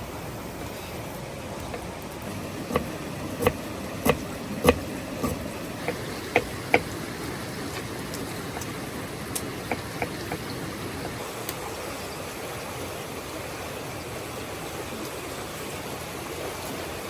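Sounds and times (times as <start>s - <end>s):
running water rushing: 0.0s - 17.0s
sharp knocks: 2.6s - 7.0s.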